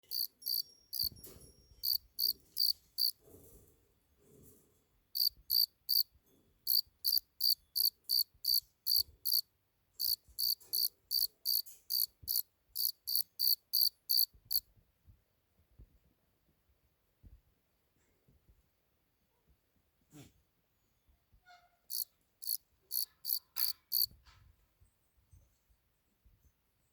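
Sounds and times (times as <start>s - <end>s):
cricket chirping: 0.0s - 3.1s, 5.2s - 6.0s, 6.7s - 9.4s, 10.0s - 14.6s, 21.9s - 24.1s.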